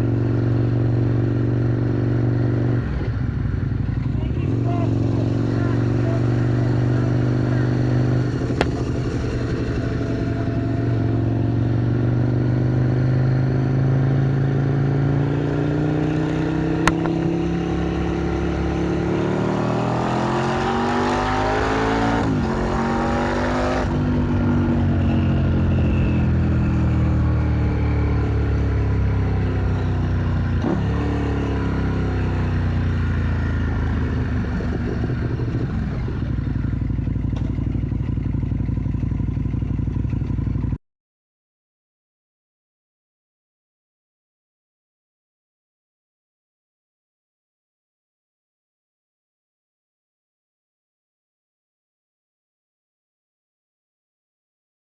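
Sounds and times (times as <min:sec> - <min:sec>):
road and wind noise: 0:00.0 - 0:40.7
motorcycle engine accelerating: 0:00.0 - 0:40.8.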